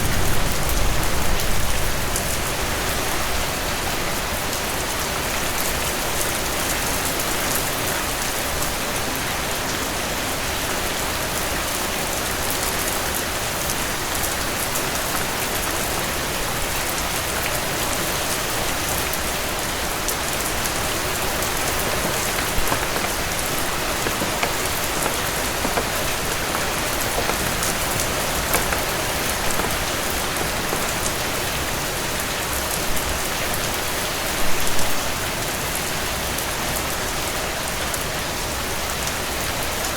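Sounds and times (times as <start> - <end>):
heavy rain on porch: 0.0 - 34.3
sharp clicks and pops: 21.4 - 31.1.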